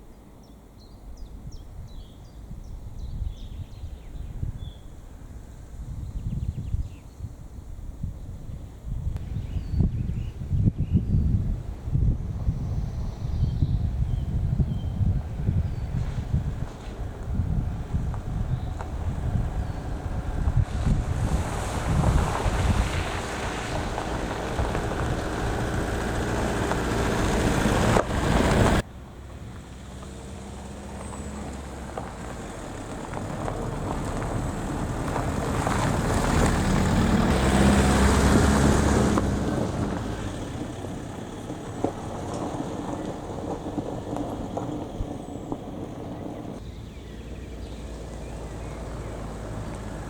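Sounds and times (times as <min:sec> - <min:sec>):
wind buffeting microphone: 0:01.2 - 0:28.9, 0:29.7 - 0:50.0
car passing by: 0:15.2 - 0:50.0.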